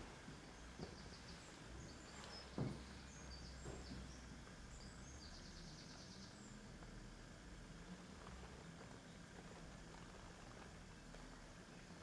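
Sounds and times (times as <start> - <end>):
low background noise: 0.0 - 12.0
faint high bird chirps: 0.4 - 6.6
soft thumps: 2.1 - 4.1.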